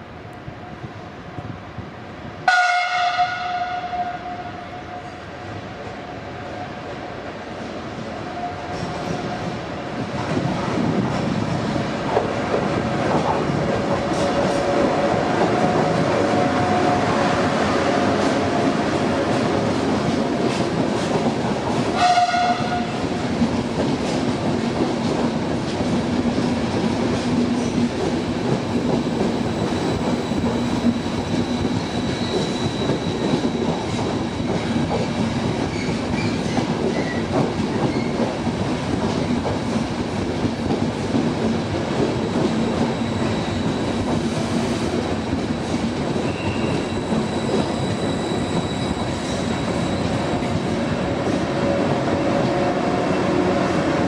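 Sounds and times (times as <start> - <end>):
train rumbling: 0.0 - 54.0
train horn blast: 2.4 - 5.2, 22.0 - 23.0.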